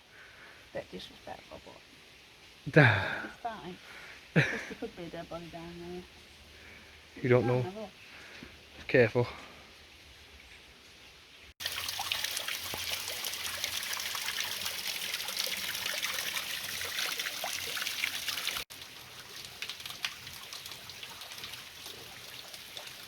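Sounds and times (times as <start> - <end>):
water trickling over rocks: 11.6 - 23.0.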